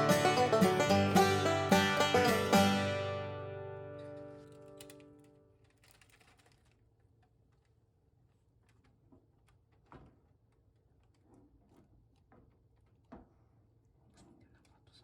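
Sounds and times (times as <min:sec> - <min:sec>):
faint clicks and knocks: 0:04.4 - 0:07.9.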